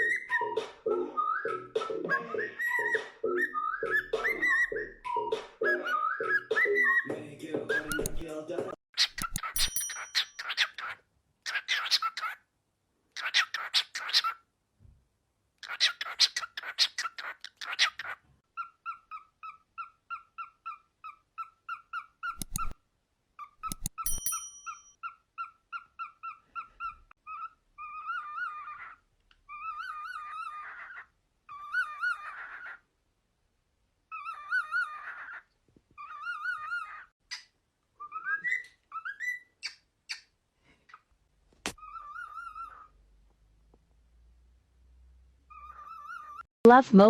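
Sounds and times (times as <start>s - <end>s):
cockatiel whistling: 0.0s - 7.1s, 7.7s - 8.2s, 38.0s - 39.8s.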